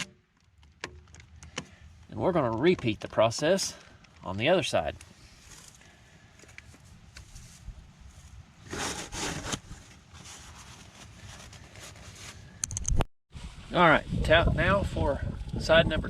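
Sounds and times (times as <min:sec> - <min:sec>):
shuffling and handling noises: 0:02.0 - 0:12.6
rustling scrape: 0:06.7 - 0:12.6
small clicks: 0:12.6 - 0:13.1.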